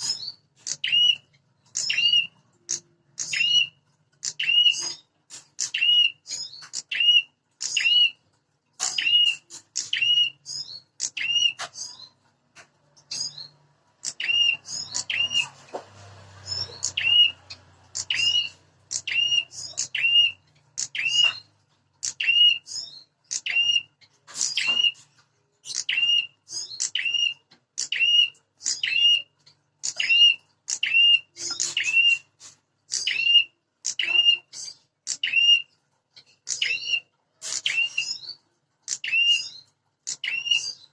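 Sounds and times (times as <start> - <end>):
warblers calling in rapid bursts: 0.0 - 5.0, 8.8 - 12.1, 13.0 - 15.8, 16.4 - 25.0, 25.7 - 32.3, 32.9 - 35.7.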